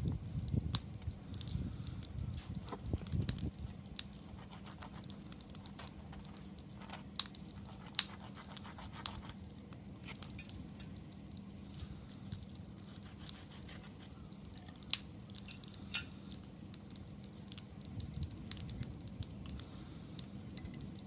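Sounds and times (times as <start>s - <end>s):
campfire crackling: 0.0s - 21.0s
sharp pops from fire: 0.0s - 21.0s.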